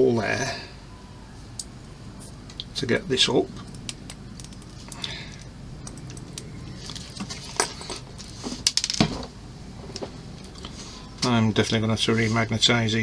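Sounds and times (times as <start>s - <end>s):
small plastic parts clattering: 6.8s - 9.3s.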